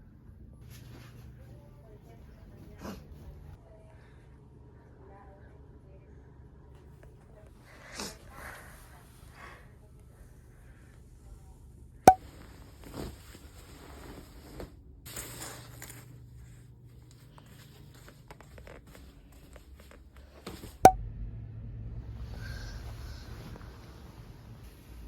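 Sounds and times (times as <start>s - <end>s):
rustling and handling noise: 12.1s - 20.7s.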